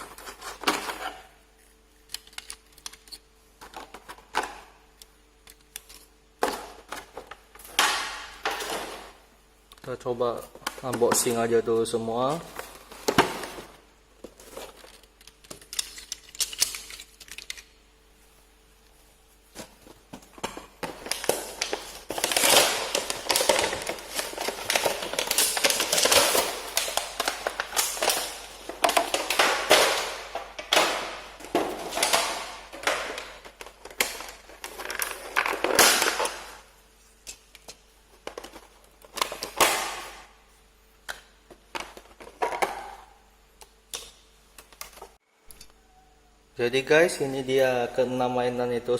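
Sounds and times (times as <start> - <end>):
toy packaging crinkling: 20.9 - 36.4.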